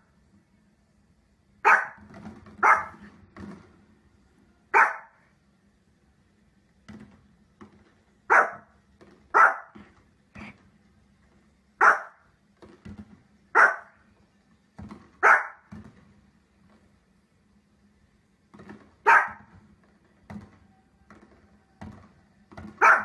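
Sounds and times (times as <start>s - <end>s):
small dog barking: 1.6s - 2.0s, 2.6s - 3.0s, 4.7s - 5.2s, 8.3s - 8.7s, 9.3s - 9.8s, 11.8s - 12.2s, 13.5s - 14.0s, 15.2s - 15.7s, 19.0s - 19.5s, 22.7s - 23.0s.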